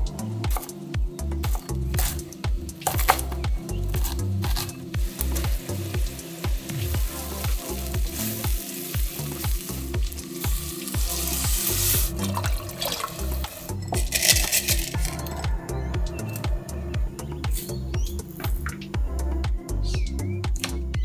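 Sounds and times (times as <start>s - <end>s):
background music with beat: 0.0s - 21.0s
bacon and onion sizzling: 4.0s - 15.4s
water poured hissing in pan: 5.0s - 15.1s.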